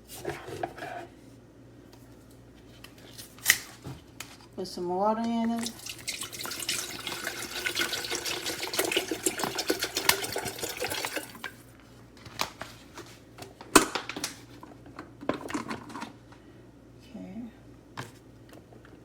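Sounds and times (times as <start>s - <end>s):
water filling a kettle: 5.6s - 11.7s.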